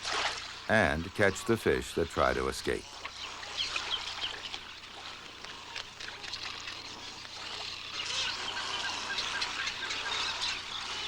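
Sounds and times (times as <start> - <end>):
wading bird calls: 0.0 - 11.0
water splashing and trickling: 0.0 - 11.0.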